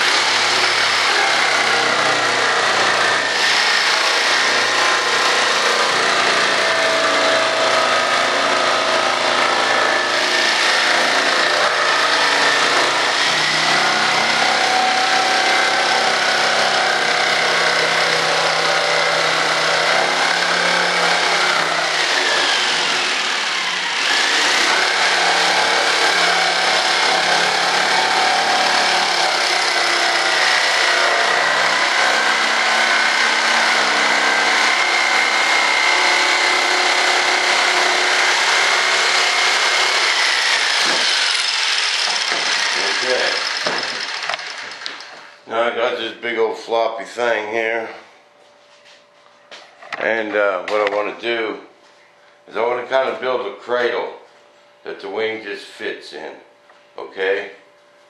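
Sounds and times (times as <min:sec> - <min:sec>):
power tool cutting wood: 0:00.0 - 0:45.4.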